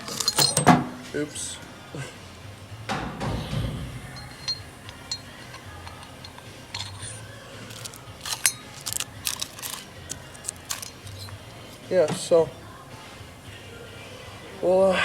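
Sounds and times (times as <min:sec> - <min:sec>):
metal tools clinking and tapping: 0:00.0 - 0:01.0, 0:02.9 - 0:11.4.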